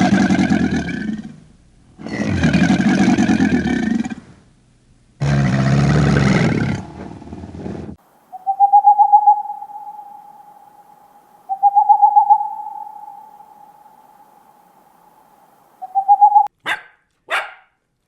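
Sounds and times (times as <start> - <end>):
trilling hooting calls: 8.0 - 17.5.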